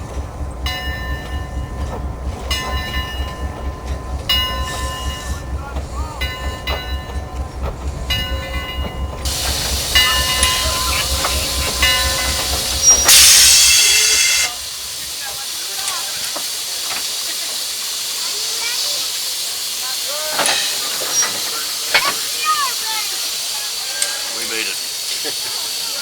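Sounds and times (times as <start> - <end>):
steam locomotive rhythmic beat: 0.0 - 26.0
steam hiss: 8.1 - 26.0
high squealing tones: 9.5 - 14.6.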